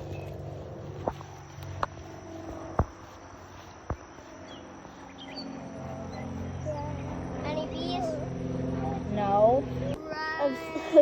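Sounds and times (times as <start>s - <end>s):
high insect-like drone: 0.0s - 11.0s.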